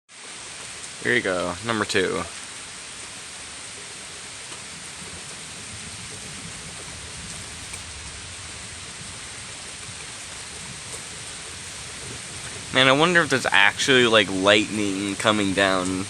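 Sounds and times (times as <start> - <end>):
steady rain hiss: 0.1 - 16.0
faint ticks: 7.2 - 8.2.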